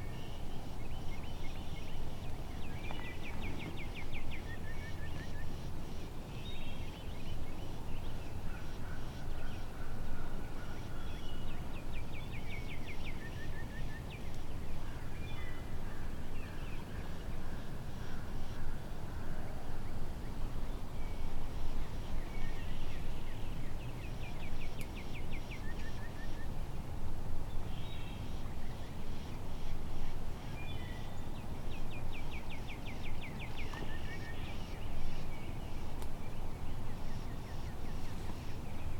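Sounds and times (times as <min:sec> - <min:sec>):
low rumble of wind: 0:00.0 - 0:38.9.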